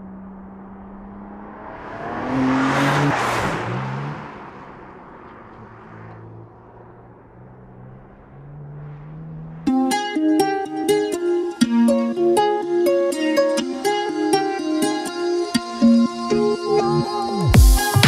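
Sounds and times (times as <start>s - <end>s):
car engine driving past: 0.0s - 10.1s.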